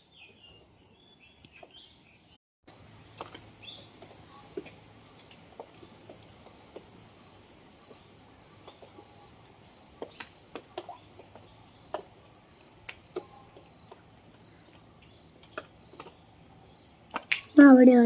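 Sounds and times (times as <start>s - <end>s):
birds chirping and clicking: 8.6s - 17.6s.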